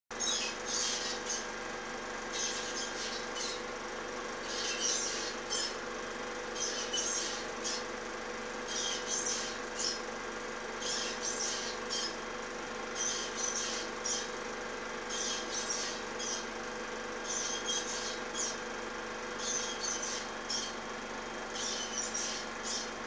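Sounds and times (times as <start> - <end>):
steady hum: 0.1 - 23.0
high-pitched bird chirps: 0.2 - 1.5, 2.3 - 3.6, 4.4 - 5.8, 6.6 - 7.9, 8.7 - 10.0, 10.8 - 12.2, 13.0 - 14.3, 15.1 - 16.5, 17.2 - 18.6, 19.4 - 20.8, 21.6 - 22.9.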